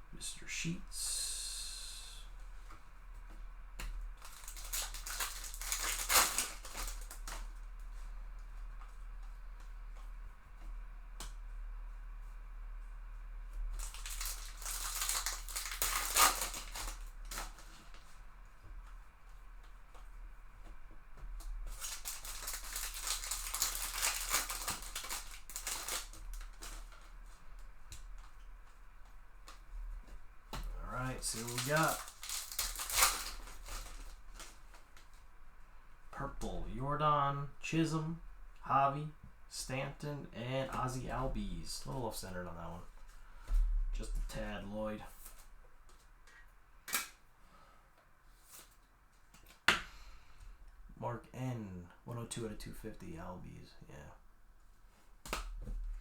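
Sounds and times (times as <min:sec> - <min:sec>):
foil wrapper crinkling and tearing: 0:04.1 - 0:08.0, 0:13.7 - 0:18.1, 0:21.4 - 0:28.3, 0:30.6 - 0:35.2.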